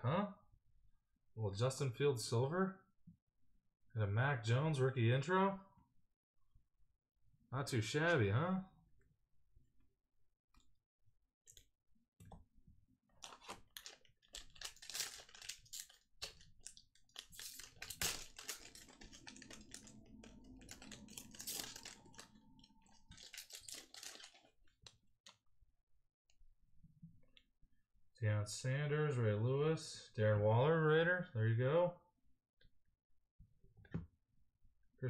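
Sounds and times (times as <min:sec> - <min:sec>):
cards rustling: 0:13.2 - 0:24.6
wrapper crinkling as torn open: 0:13.2 - 0:24.6.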